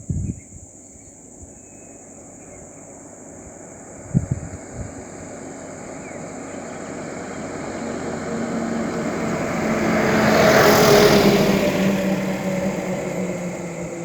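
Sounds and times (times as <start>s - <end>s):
vehicle driving past: 4.6s - 14.0s.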